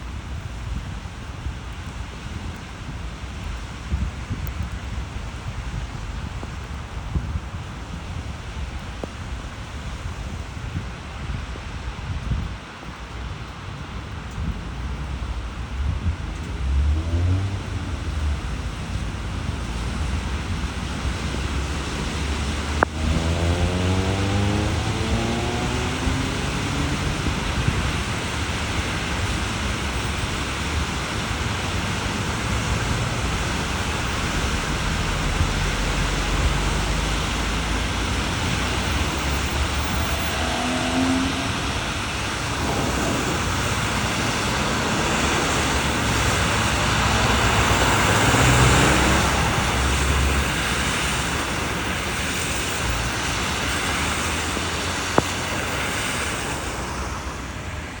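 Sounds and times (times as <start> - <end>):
steady rain: 0.0 - 58.0
traffic on wet roads: 0.0 - 58.0
vehicle passing: 16.2 - 30.8, 31.6 - 58.0.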